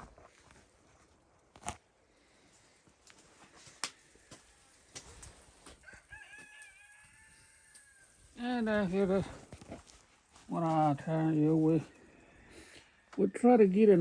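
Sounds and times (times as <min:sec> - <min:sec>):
footsteps crunching in snow: 0:02.6 - 0:06.7, 0:07.7 - 0:12.0.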